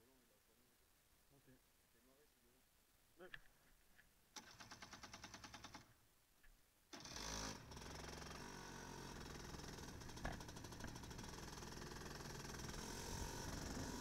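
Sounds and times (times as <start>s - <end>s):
kart engine cranking: 4.4s - 5.9s, 6.9s - 14.0s
kart engine revving and idling: 7.0s - 14.0s.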